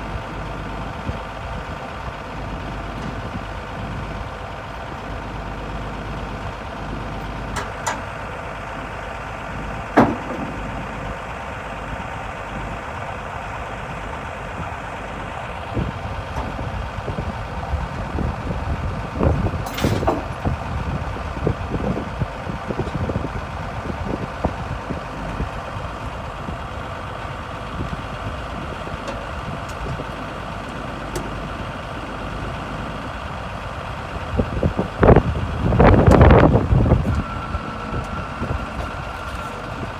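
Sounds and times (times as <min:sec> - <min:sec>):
diesel engine running: 0:00.0 - 0:39.9
metal clanks and knocks: 0:07.5 - 0:08.1, 0:10.0 - 0:10.7, 0:19.6 - 0:20.6.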